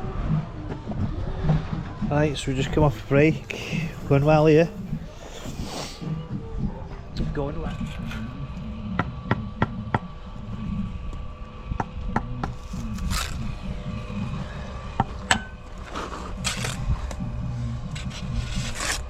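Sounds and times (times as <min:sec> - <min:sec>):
trowel scraping mortar: 0:12.5 - 0:19.0.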